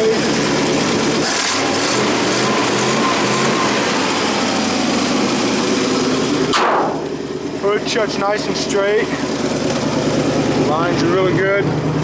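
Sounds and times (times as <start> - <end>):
engine idling: 0.0 - 12.0
hood slamming shut: 6.5 - 7.1.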